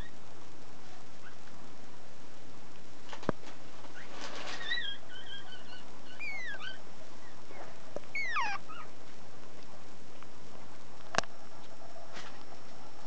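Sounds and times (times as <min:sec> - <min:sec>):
puppy whimpering: 0:04.0 - 0:08.9.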